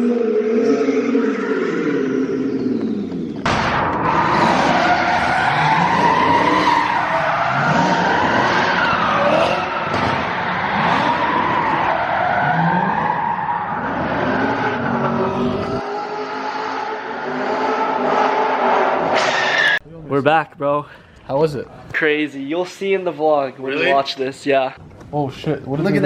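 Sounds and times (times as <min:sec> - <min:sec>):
tires squealing: 0:01.3 - 0:19.8.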